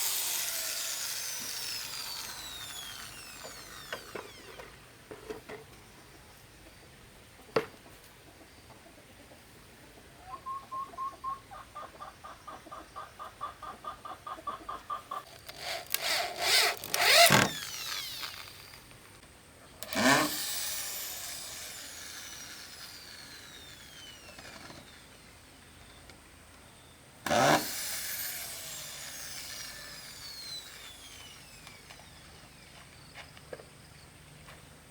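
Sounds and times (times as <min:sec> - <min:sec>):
rhythmic tool strokes on bamboo: 0:00.0 - 0:04.5, 0:19.8 - 0:24.6, 0:27.3 - 0:32.9
bamboo cracking: 0:15.3 - 0:19.0.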